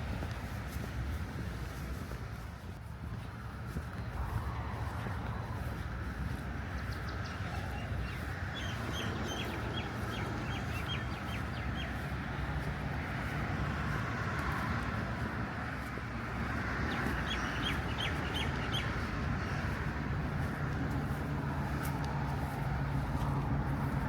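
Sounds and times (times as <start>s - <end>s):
bird chirping: 7.0s - 12.1s, 16.9s - 19.1s.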